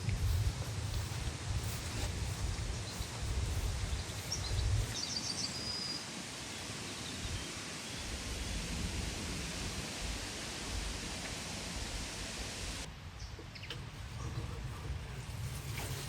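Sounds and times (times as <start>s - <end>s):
steady hiss: 0.0s - 16.0s
small birds chirping: 0.1s - 8.6s.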